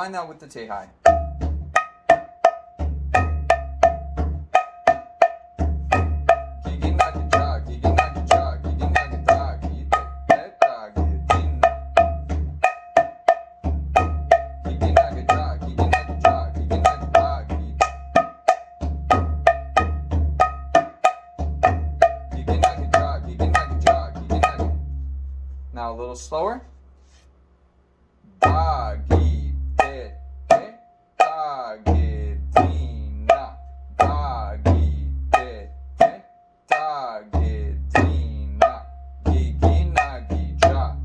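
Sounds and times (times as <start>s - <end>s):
sharp ringing drum strokes: 1.0s - 24.9s, 29.8s - 31.9s.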